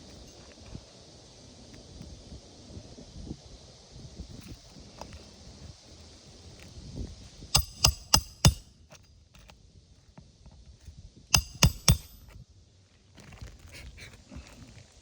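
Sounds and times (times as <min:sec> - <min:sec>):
hammer striking metal tool: 0:07.6 - 0:08.7, 0:11.4 - 0:12.4.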